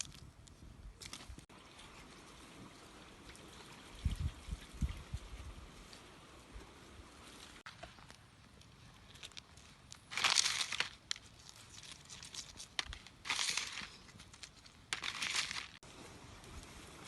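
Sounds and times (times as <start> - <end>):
crinkling rustle: 7.2 - 15.8.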